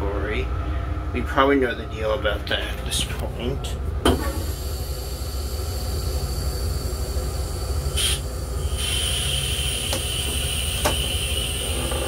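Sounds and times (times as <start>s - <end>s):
railcar low rumble: 0.0s - 12.0s
steady high whine: 0.0s - 12.0s
short hiss: 8.0s - 11.6s.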